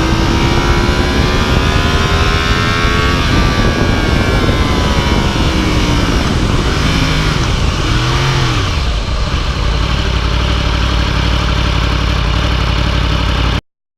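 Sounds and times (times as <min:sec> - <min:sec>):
motorcycle engine revving and idling: 0:00.0 - 0:13.6.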